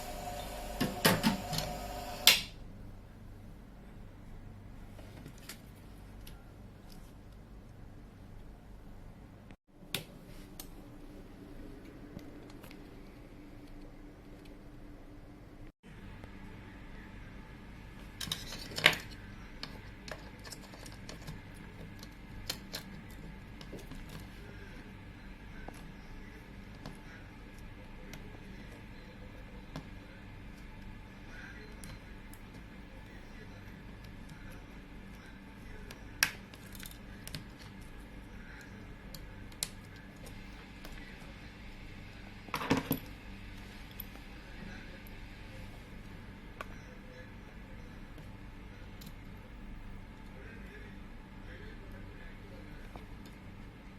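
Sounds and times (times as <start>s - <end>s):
steady low hum: 0.0s - 53.9s
small tools clicking and tapping: 18.2s - 24.2s.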